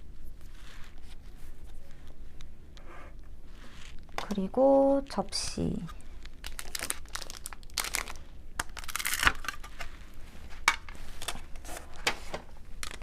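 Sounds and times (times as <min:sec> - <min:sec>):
packaging crinkling: 0:06.0 - 0:12.1, 0:12.8 - 0:13.0.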